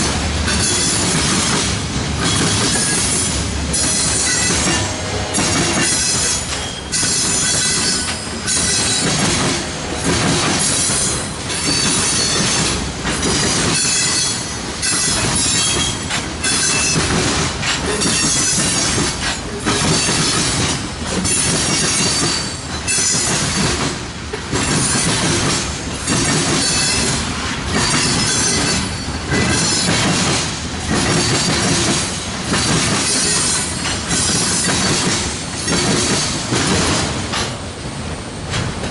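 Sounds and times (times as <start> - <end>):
freight train cars rolling past: 0.0 - 38.9
wheel squeal: 3.8 - 9.1.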